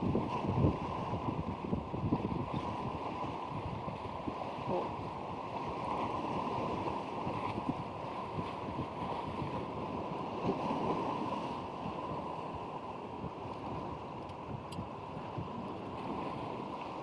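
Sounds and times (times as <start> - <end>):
surf on cobble beach: 0.0 - 17.0
wind buffeting microphone: 0.0 - 17.0.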